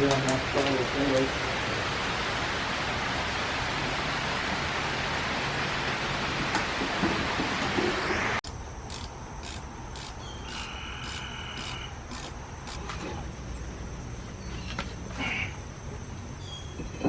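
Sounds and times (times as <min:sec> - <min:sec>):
insects chirping: 0:08.4 - 0:17.0.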